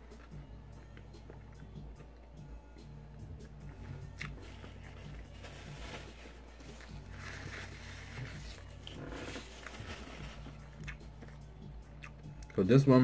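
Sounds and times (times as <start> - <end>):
man chewing: 3.4 - 5.4, 6.0 - 12.5
paper napkin rustling: 4.4 - 10.8.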